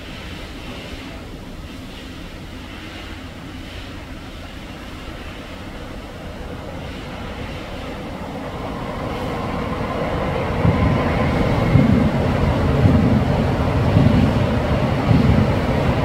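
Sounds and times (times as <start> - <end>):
train rumble: 0.0 - 16.0.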